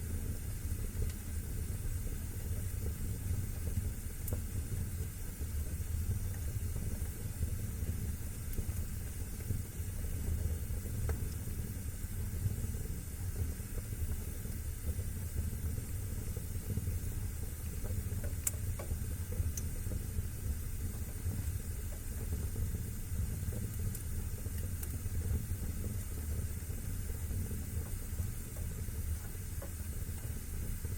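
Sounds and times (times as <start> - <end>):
wood fire burning: 0.0 - 30.9
crackling pops of fire: 6.2 - 12.6, 13.4 - 30.9.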